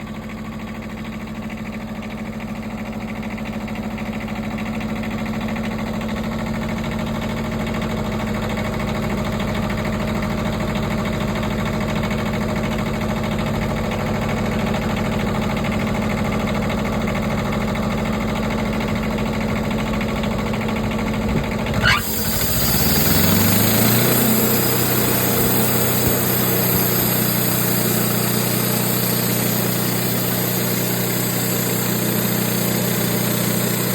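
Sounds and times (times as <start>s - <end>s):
sawmill engine running: 20.8s - 33.9s
engine revving up: 21.7s - 33.9s
hiss: 21.8s - 33.9s.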